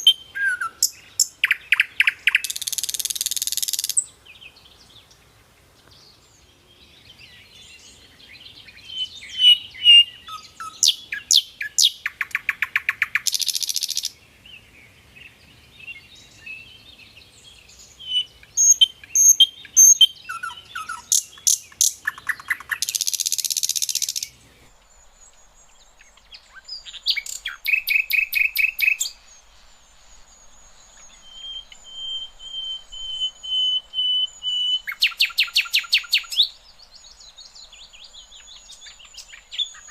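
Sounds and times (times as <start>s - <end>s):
bird singing high trills: 0.0s - 4.1s, 17.7s - 39.9s.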